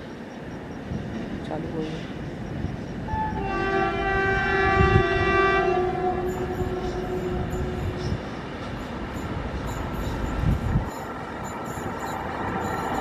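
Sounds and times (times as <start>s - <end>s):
train rumbling and clattering past: 0.0s - 13.0s
locomotive horn chord: 3.2s - 8.0s.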